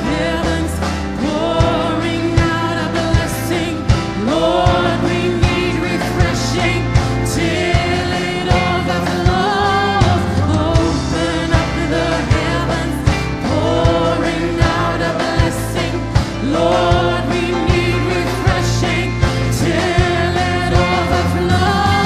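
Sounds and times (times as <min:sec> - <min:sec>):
steady drum beat: 0:00.0 - 0:22.0.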